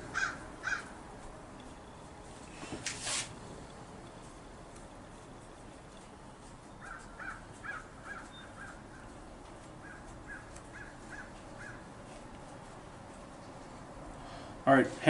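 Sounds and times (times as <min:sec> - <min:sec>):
bird calling repeated notes: 0:00.1 - 0:01.0, 0:06.8 - 0:11.9.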